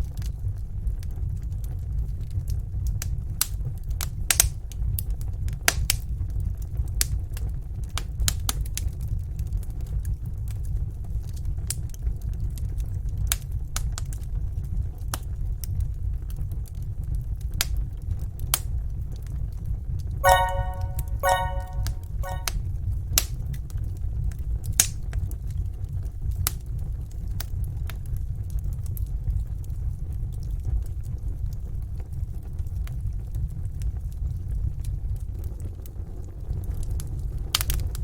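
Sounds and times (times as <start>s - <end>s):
brief musical tone: 20.2s - 22.5s.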